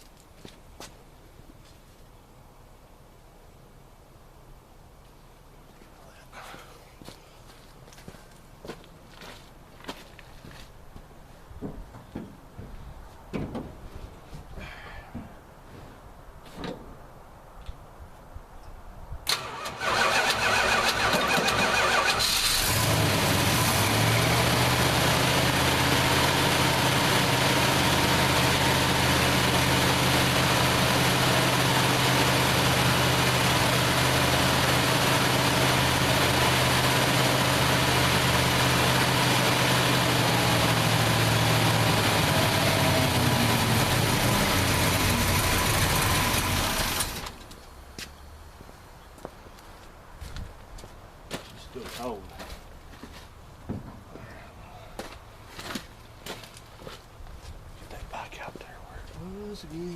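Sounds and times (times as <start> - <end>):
starter cranking engine: 19.3 - 24.1, 44.6 - 47.4
car engine idling: 19.3 - 47.5.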